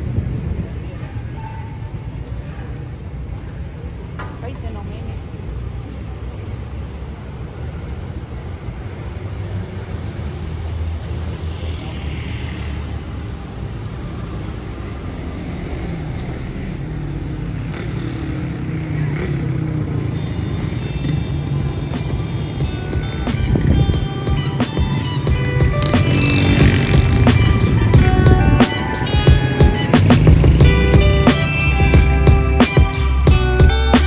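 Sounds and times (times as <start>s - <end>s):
street traffic rumble: 0.0s - 34.0s
vehicle passing close: 5.3s - 34.0s.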